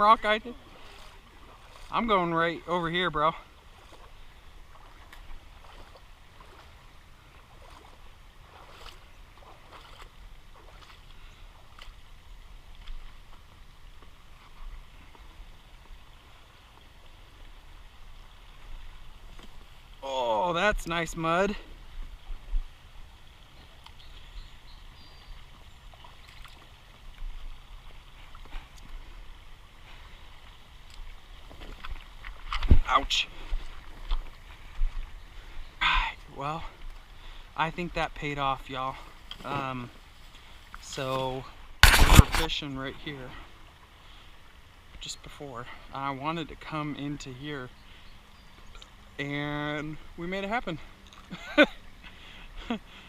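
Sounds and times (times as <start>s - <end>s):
water splashing from wading: 0.0s - 37.6s.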